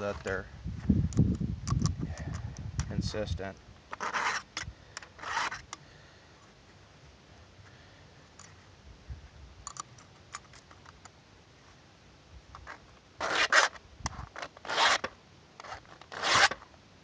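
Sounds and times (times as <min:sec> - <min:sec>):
file rasping on chain: 0:04.0 - 0:04.5, 0:05.2 - 0:05.6, 0:14.6 - 0:16.6.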